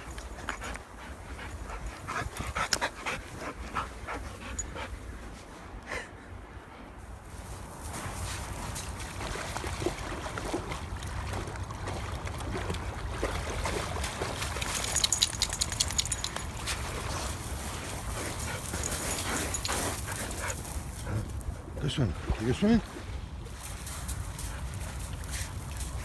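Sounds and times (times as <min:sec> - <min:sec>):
dog sounds: 0:13.6 - 0:22.5.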